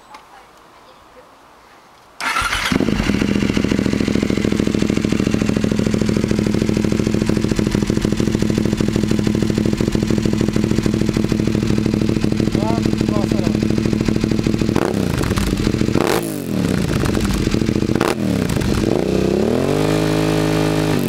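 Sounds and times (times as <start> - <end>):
motorcycle engine cranking: 2.2 - 19.0
motorcycle engine idling: 2.2 - 19.6.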